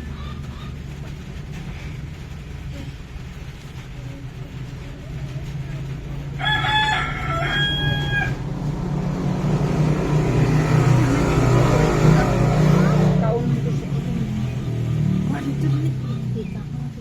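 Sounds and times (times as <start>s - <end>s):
steady low drone: 1.6s - 16.0s
rooster crowing: 6.3s - 13.1s.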